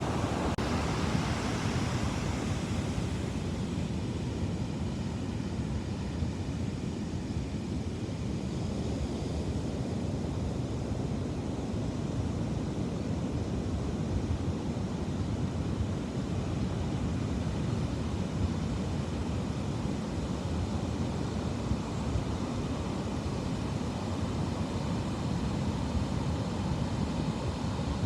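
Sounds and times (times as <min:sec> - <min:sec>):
ocean surf washing onto beach: 0:00.0 - 0:05.2, 0:18.4 - 0:28.0.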